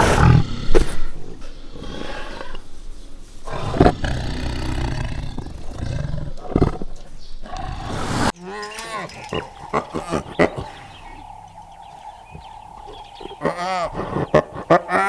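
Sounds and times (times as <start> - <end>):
large animal roaring: 3.5 - 6.8.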